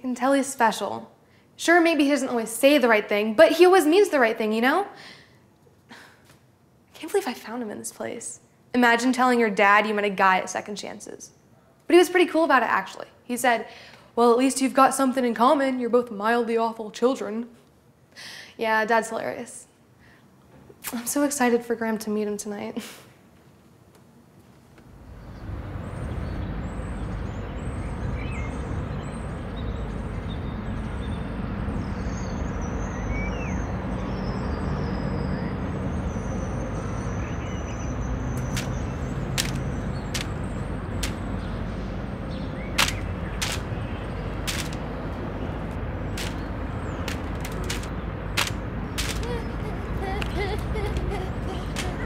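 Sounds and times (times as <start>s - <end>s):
faint bird chirps: 26.2s - 41.6s
steady low rumble: 38.0s - 52.0s
sharp clicks: 38.4s - 41.4s, 42.7s - 45.0s, 45.7s - 52.0s.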